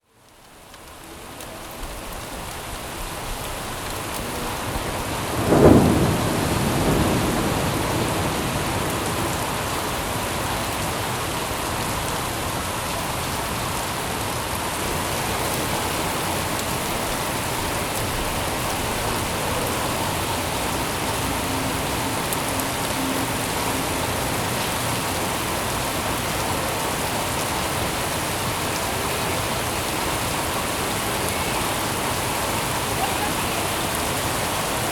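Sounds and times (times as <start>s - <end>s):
steady rain falling: 0.0s - 34.9s
thunder clap rumbling: 1.6s - 10.4s, 14.8s - 28.8s.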